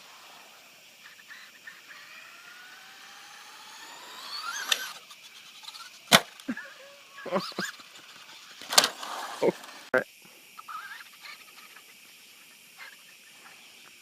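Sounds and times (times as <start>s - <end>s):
toy truck motor whining: 1.0s - 10.0s.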